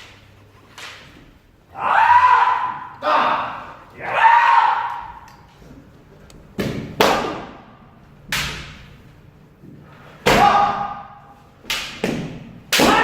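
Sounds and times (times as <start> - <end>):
person shouting: 1.8 - 5.3, 10.3 - 11.2
bamboo sword strikes: 6.6 - 7.6, 10.2 - 13.0.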